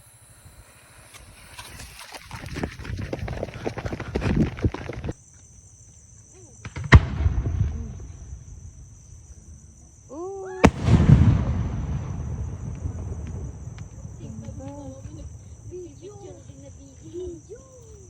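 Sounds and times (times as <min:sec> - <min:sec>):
firework shells bursting: 0:00.0 - 0:03.1, 0:06.6 - 0:08.7, 0:10.6 - 0:15.7
crickets chirping: 0:00.0 - 0:18.0
long rolling rumble: 0:10.7 - 0:18.0.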